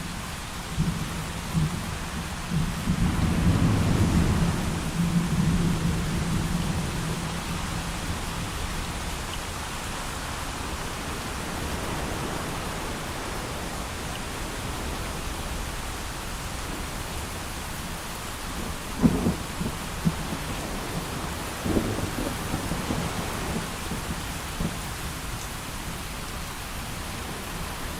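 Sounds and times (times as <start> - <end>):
heavy rain: 0.0 - 27.9
low thunder rumble: 0.7 - 9.0, 18.5 - 26.1.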